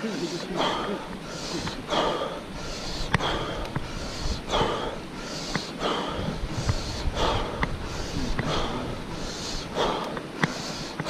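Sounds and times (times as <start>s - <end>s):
person panting hard: 0.0s - 11.0s
sharp clicks: 9.9s - 11.0s.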